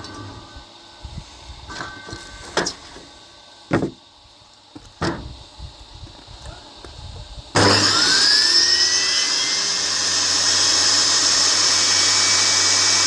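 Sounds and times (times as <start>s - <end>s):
knocks and clunks of tools: 3.7s - 4.0s.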